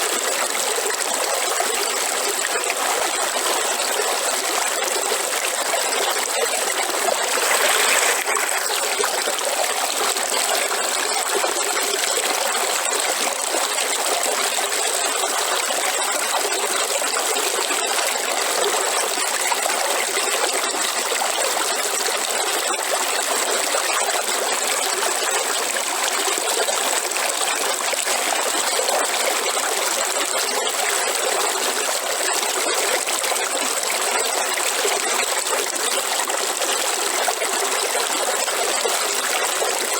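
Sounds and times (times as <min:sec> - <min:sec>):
river water flowing: 0:00.0 - 0:19.4.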